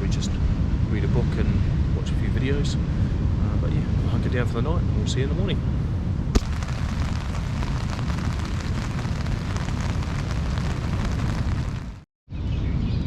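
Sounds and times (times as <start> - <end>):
strong wind: 0.0 - 12.0
heavy surf rumbling: 6.4 - 12.0
rain on a tent: 6.4 - 12.0.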